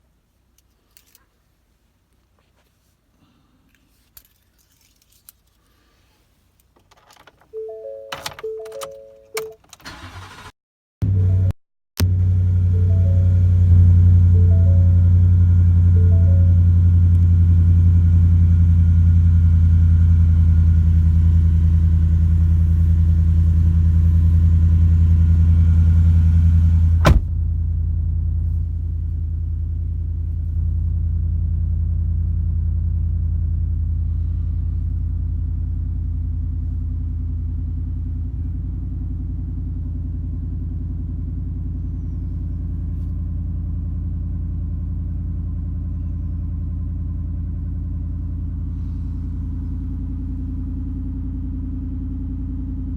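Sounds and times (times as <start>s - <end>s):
engine exhaust rumble idling: 11.0s - 52.9s.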